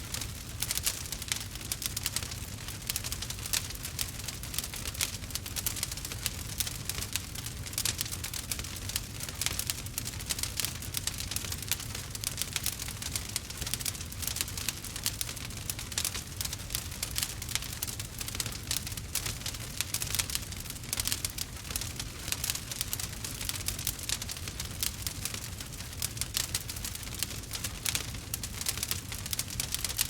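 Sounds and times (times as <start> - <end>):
low rumble of flames: 0.0 - 30.0
wood fire crackling: 0.0 - 30.0.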